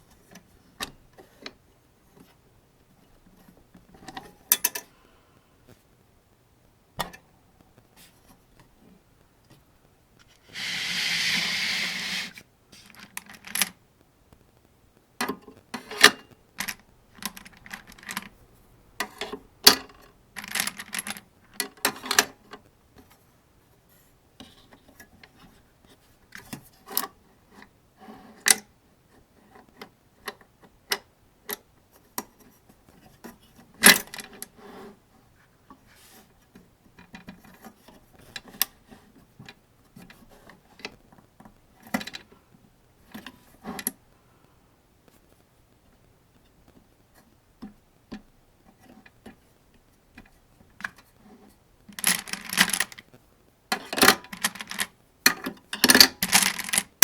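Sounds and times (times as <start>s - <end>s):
metal scraping rub: 10.4s - 12.4s.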